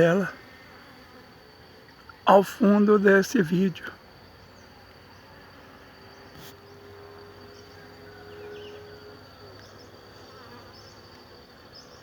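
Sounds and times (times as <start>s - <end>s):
high insect whine: 0.0s - 12.0s
bees buzzing: 4.5s - 12.0s.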